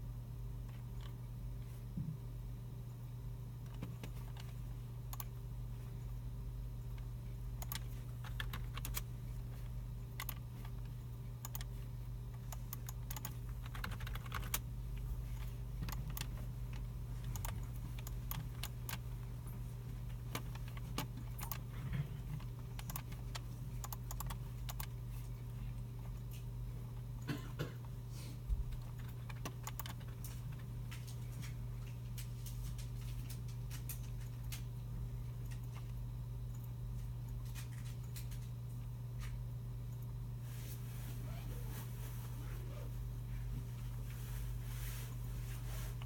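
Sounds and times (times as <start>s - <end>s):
steady low hum: 0.0s - 46.0s
keyboard typing: 6.9s - 19.2s, 20.0s - 25.3s, 28.7s - 34.7s.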